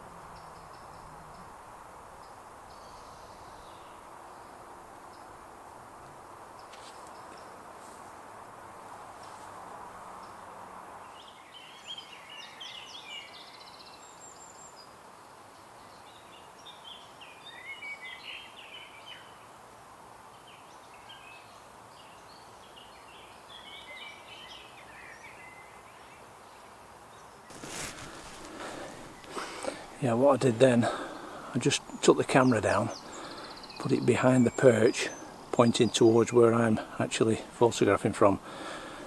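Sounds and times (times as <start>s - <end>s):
steady outdoor hiss: 0.0s - 39.0s
songbird warbling: 27.5s - 39.0s.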